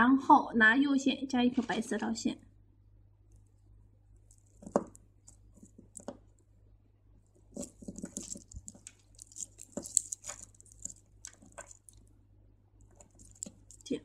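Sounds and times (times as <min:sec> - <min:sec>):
beads clicking and rustling: 0:03.3 - 0:06.4, 0:07.3 - 0:12.1, 0:12.8 - 0:14.0.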